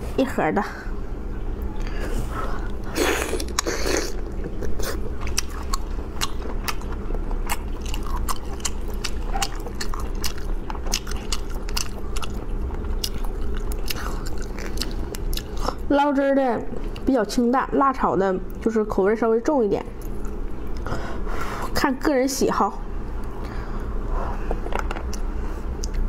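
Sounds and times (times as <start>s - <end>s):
steady low hum: 0.0s - 26.0s
crunchy chewing: 2.7s - 15.8s.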